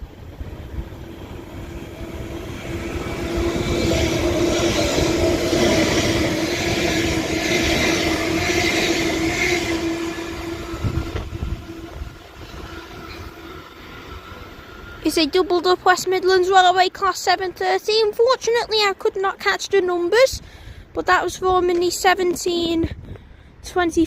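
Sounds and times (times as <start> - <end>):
electric train motor tone: 0.0 - 15.9
wheel-on-rail rumble: 0.0 - 19.8.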